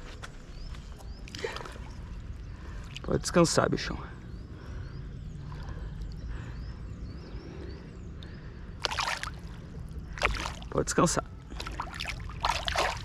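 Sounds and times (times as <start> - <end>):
fish splashing: 8.8 - 9.5, 10.1 - 10.7, 11.5 - 13.0
water sloshing: 8.8 - 10.8, 11.4 - 13.0.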